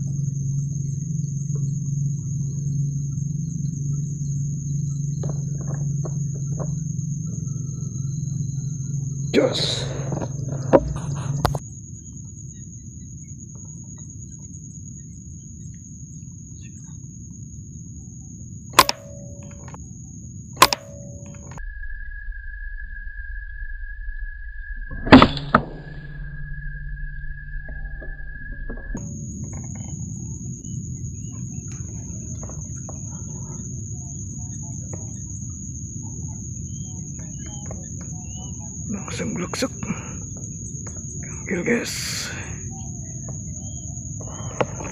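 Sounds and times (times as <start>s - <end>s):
high-pitched insect trill: 0.0s - 44.9s
high-pitched whine: 0.0s - 44.9s
low hum: 0.0s - 44.9s
low rumble: 0.0s - 44.9s
air rifle shots: 18.8s - 19.8s, 20.6s - 21.6s
brief ringing tone: 20.6s - 29.0s.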